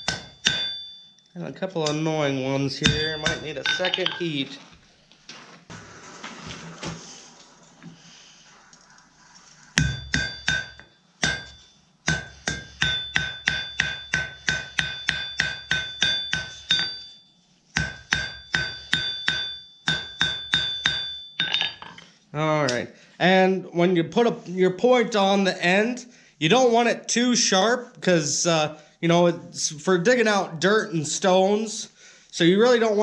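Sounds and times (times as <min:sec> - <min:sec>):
hammer striking metal on anvil: 0:00.0 - 0:01.1, 0:02.8 - 0:04.3, 0:09.8 - 0:17.2, 0:17.8 - 0:22.0.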